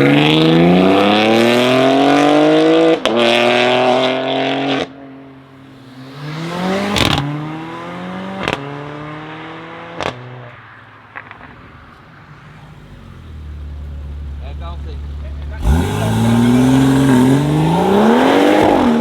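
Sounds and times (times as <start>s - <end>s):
car accelerating hard: 0.0s - 10.5s, 12.3s - 19.0s
engine idling: 12.6s - 18.9s.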